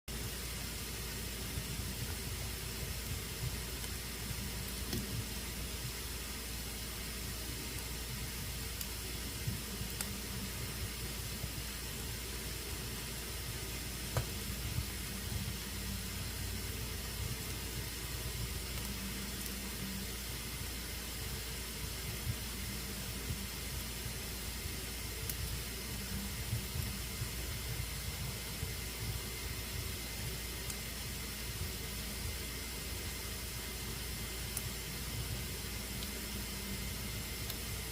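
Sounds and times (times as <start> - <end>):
fire hissing in fireplace: 0.1 - 37.9
faint fire pops: 1.5 - 6.4, 7.0 - 12.5, 13.4 - 15.7, 16.9 - 19.8, 25.0 - 37.9.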